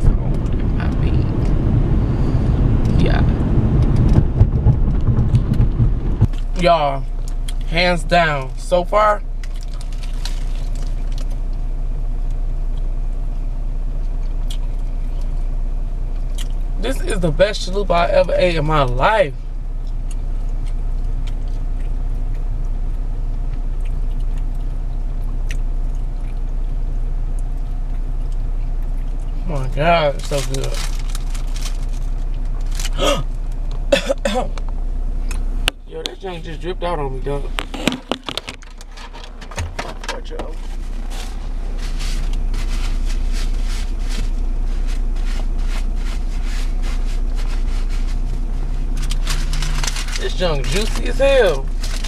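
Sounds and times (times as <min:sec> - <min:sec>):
car cabin engine rumble: 0:00.0 - 0:52.0
person chewing food: 0:09.4 - 0:11.6, 0:13.9 - 0:15.5, 0:16.1 - 0:16.7, 0:19.7 - 0:29.4.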